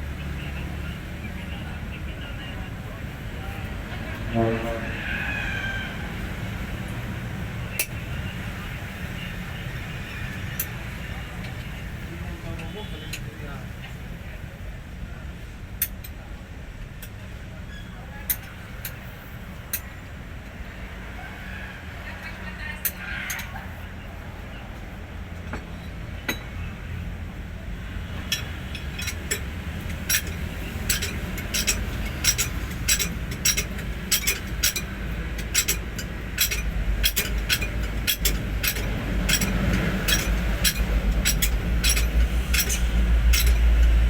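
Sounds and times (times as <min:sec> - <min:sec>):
low steady rumble: 0:18.3 - 0:44.0
sharp metallic clinks: 0:28.2 - 0:44.0.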